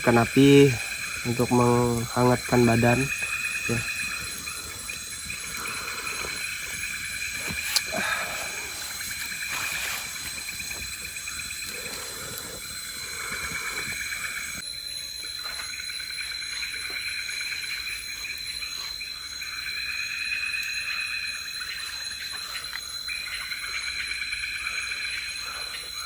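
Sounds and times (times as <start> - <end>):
faint crackles: 0.0 - 14.6
insect chorus trilling: 0.0 - 26.0.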